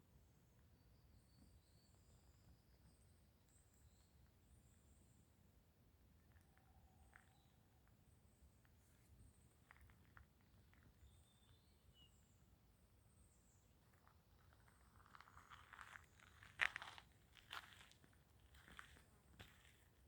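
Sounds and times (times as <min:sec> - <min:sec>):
footsteps crunching on dry trail: 0:14.0 - 0:20.0.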